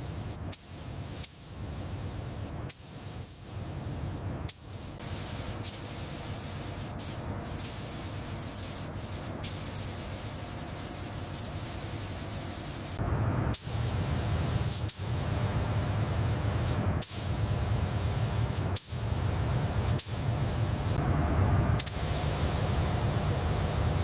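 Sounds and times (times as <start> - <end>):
spraying hiss: 0.0 - 21.0, 21.8 - 24.0
low hum: 13.0 - 18.2, 19.0 - 24.0.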